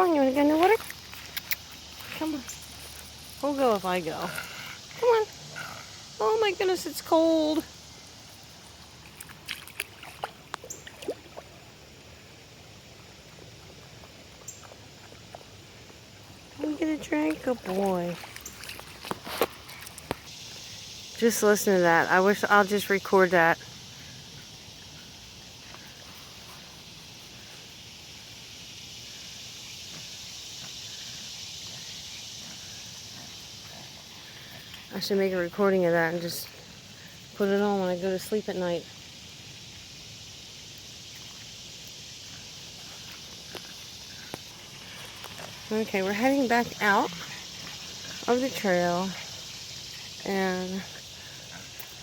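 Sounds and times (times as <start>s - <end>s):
insects chirping in chorus: 0.0s - 52.0s
running water: 0.0s - 52.0s
shallow water splashing: 8.5s - 11.8s, 13.6s - 20.7s.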